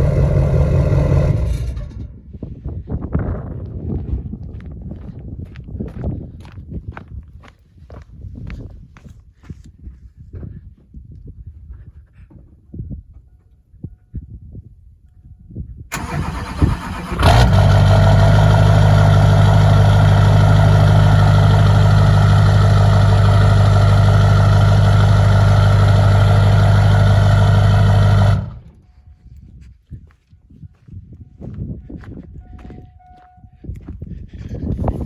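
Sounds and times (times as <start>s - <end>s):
diesel engine starting and idling: 0.0s - 2.2s, 15.9s - 28.8s.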